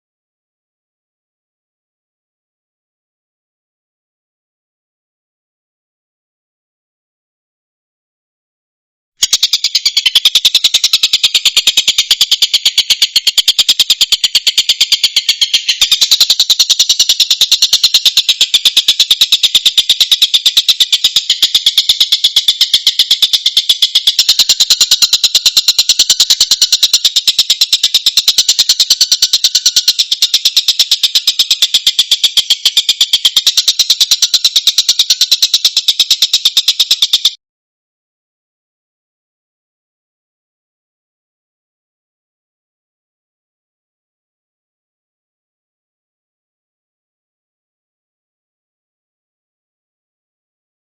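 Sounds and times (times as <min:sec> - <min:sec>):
kingfisher harsh repeated calls: 0:09.2 - 0:37.3.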